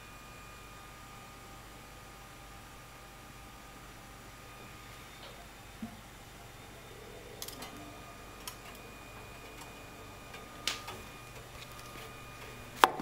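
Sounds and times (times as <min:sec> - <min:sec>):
washing machine hum: 0:00.0 - 0:13.0.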